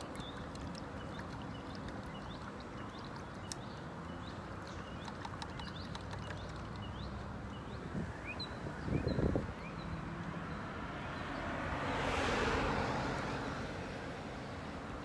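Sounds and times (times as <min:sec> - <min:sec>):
sharp ticks: 0:00.0 - 0:03.8, 0:04.5 - 0:07.1
small birds chirping: 0:00.0 - 0:11.4
road traffic rumble: 0:00.0 - 0:15.0.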